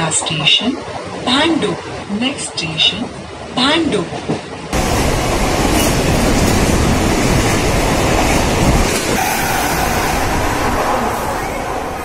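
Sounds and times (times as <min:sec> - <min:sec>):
train wheels rushing on track: 0:03.8 - 0:12.0.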